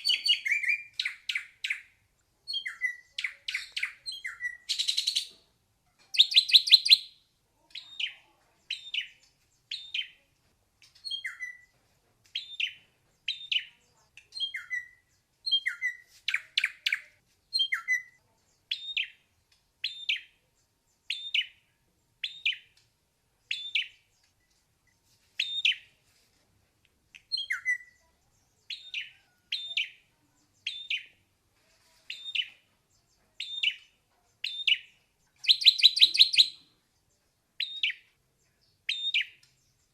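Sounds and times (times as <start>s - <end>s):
bird singing whistled notes: 0.0s - 1.9s, 2.5s - 5.3s, 6.1s - 7.2s, 8.7s - 10.2s, 10.9s - 11.7s, 12.4s - 13.7s, 14.3s - 19.2s, 19.8s - 20.4s, 21.0s - 21.6s, 22.2s - 22.7s, 23.5s - 24.6s, 25.4s - 25.9s, 27.2s - 30.0s, 30.6s - 31.1s, 32.1s - 32.6s, 33.4s - 36.7s, 37.6s - 38.1s, 38.9s - 39.9s.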